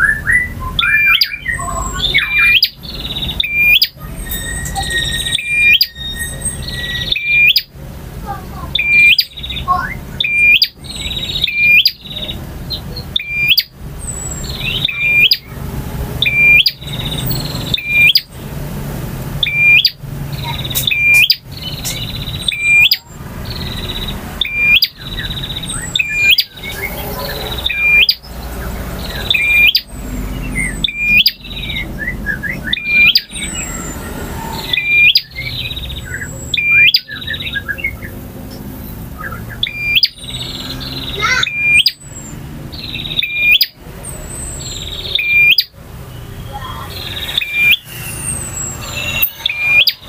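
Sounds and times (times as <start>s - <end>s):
bird singing high song: 0.0s - 18.6s, 19.2s - 50.0s
thin high sliding whistles: 3.5s - 7.4s, 46.5s - 50.0s.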